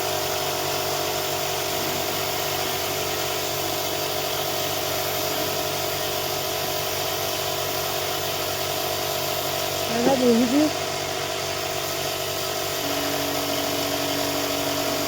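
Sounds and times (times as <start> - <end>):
motor humming: 9.6 - 15.0.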